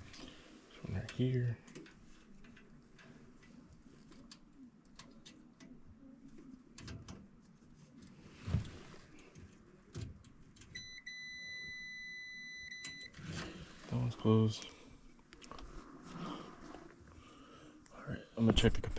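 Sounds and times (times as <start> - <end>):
multimeter continuity beep: 10.8 - 13.1.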